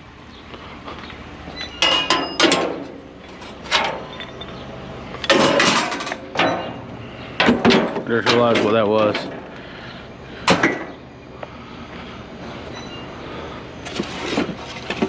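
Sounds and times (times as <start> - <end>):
metal scrap clanking: 1.6 - 4.6, 5.2 - 6.8, 7.4 - 9.4.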